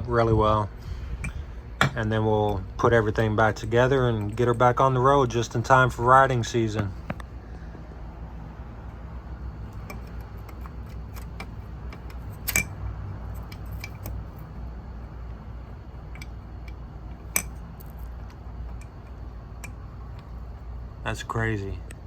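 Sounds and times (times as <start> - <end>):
steady low hum: 0.0 - 22.0
light clicks and clinks: 9.7 - 14.5.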